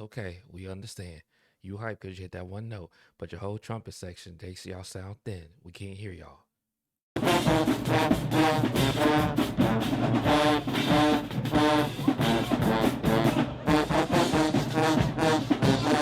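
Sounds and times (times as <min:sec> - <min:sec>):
brass section punched chords: 0:07.2 - 0:16.0.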